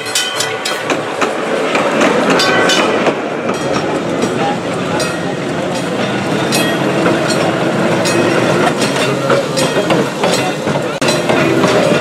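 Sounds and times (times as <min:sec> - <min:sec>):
trolley car rumbling on track: 0:00.0 - 0:12.0
wheels clicking over rail joints: 0:00.0 - 0:12.0.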